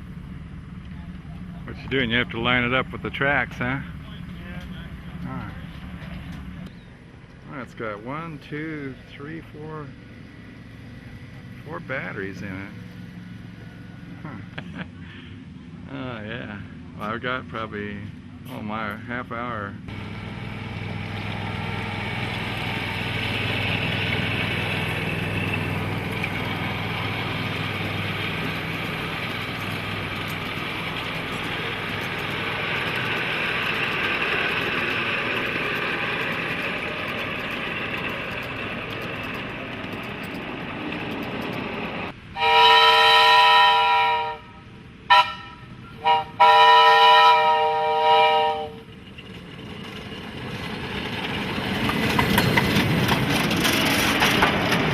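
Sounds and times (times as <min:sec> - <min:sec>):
train running hum: 0:00.0 - 0:54.9
train horn blasts: 0:42.4 - 0:48.8.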